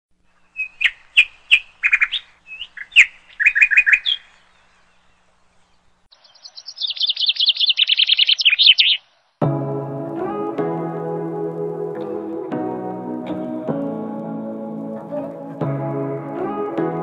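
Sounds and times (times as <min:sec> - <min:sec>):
songbird chirping and trilling: 0:00.2 - 0:09.4.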